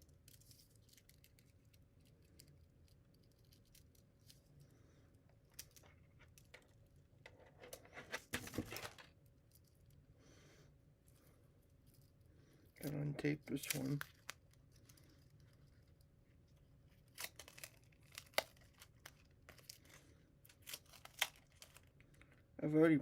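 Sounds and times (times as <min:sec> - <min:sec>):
crinkling tearing rustle: 0:12.9 - 0:16.0, 0:16.9 - 0:22.3.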